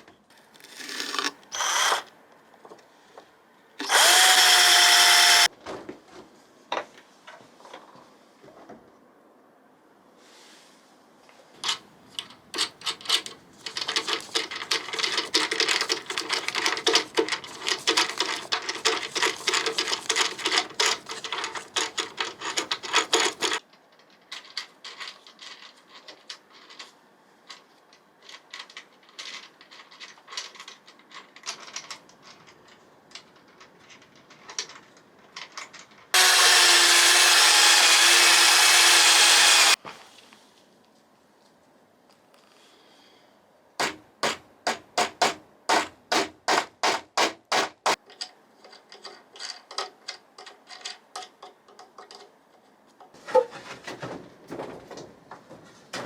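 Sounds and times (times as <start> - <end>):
hand tool scraping: 0.6 - 2.1, 3.8 - 5.5, 13.6 - 23.6, 36.2 - 39.8
loud humming machine: 36.2 - 39.8.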